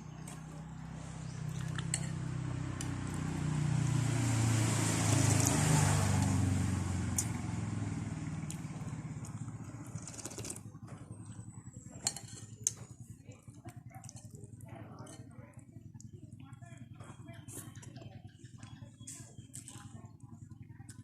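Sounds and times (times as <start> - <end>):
vehicle passing by: 0.0 - 10.6.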